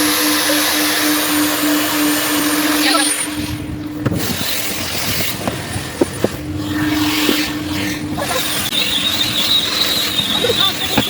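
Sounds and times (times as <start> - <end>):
high suction whistle: 0.0 - 3.6, 8.4 - 11.0.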